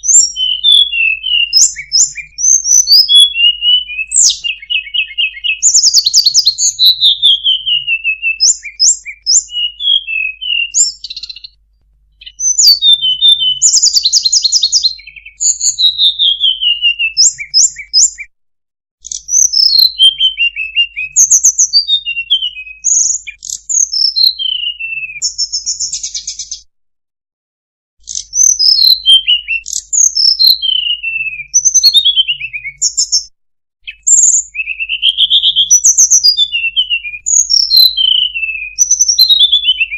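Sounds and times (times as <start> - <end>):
songbird ticking trills: 0.0 - 11.5
songbird whistled phrases: 0.0 - 11.6, 12.2 - 18.3, 19.0 - 26.6, 28.0 - 39.9.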